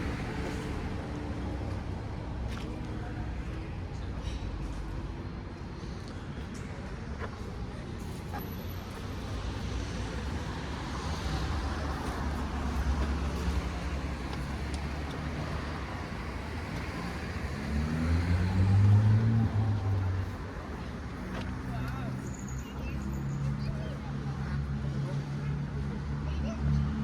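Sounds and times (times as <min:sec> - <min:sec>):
traffic engine rumble: 0:00.0 - 0:27.0
engine revving: 0:16.5 - 0:20.3.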